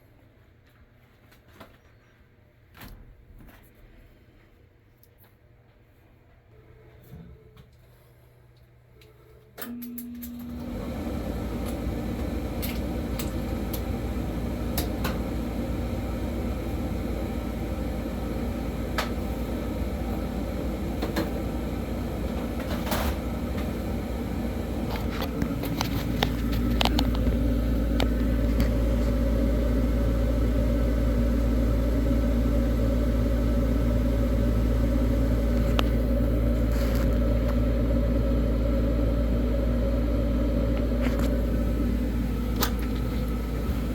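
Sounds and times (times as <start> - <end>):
furnace blower motor humming: 9.6 - 43.9.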